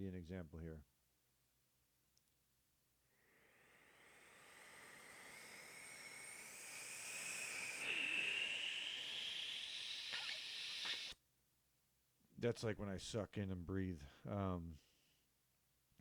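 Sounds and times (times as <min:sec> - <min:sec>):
breath sucked in close: 0:03.1 - 0:11.2.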